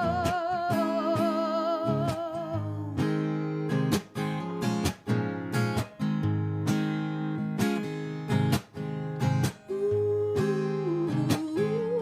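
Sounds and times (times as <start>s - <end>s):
woman singing with vibrato: 0.0s - 3.1s, 9.7s - 12.0s
acoustic guitar strumming chords: 0.0s - 12.0s.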